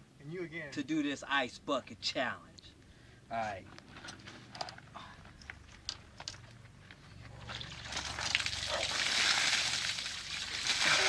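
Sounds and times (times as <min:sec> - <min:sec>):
ice water pouring and splashing: 0:07.5 - 0:11.0.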